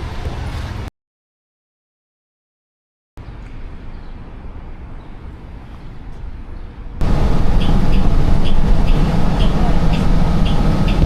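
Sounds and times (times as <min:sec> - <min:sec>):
vehicle traffic rumble: 0:03.2 - 0:11.0.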